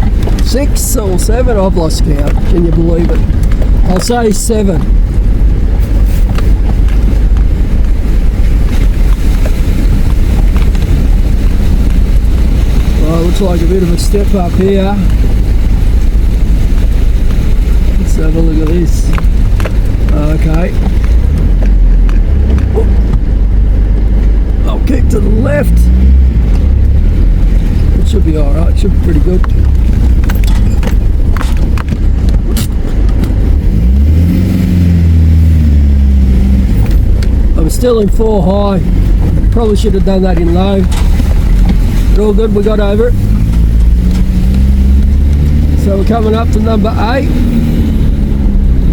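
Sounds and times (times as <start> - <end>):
off-road vehicle engine and tyres rumbling: 0.0 - 48.9
sharp knocks and clicks: 29.4 - 33.6.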